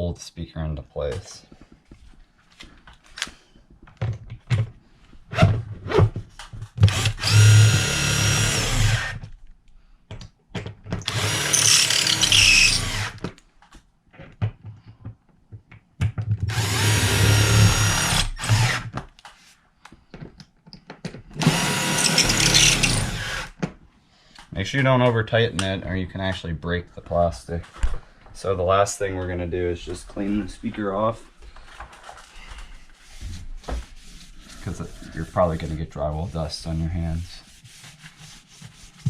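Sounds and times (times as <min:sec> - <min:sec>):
power drill driving screws: 0:06.8 - 0:09.2, 0:11.0 - 0:13.2, 0:16.5 - 0:19.0, 0:21.4 - 0:23.6.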